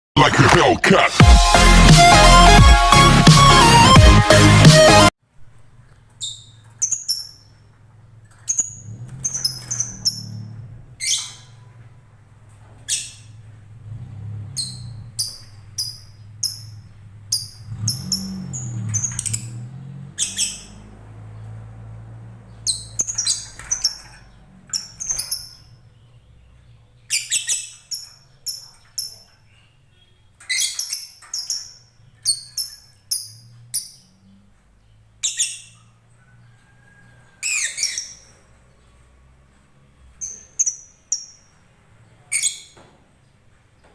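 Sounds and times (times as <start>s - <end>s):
lovebird chirping and squawking: 6.2s - 7.7s, 8.3s - 11.8s, 12.8s - 13.6s, 14.4s - 21.0s, 22.5s - 26.0s, 27.0s - 36.0s, 36.8s - 38.6s, 40.1s - 41.6s, 42.2s - 42.8s.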